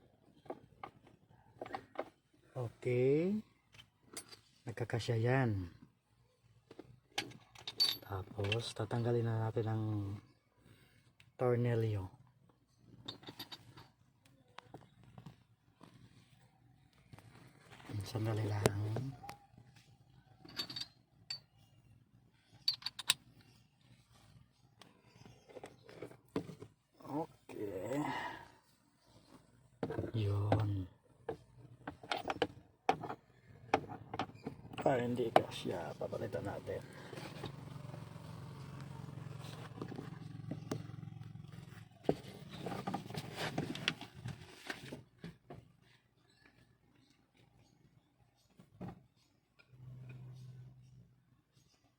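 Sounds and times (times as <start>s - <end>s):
metal hand tools clinking: 7.6s - 8.6s, 20.5s - 21.5s, 22.7s - 23.2s.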